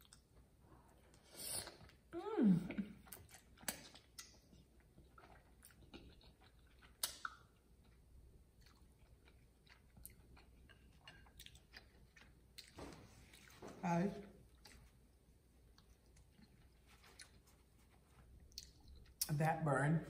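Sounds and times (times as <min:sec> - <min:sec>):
close-miked chewing: 0:00.0 - 0:19.3
wet mouth clicks: 0:05.9 - 0:07.5.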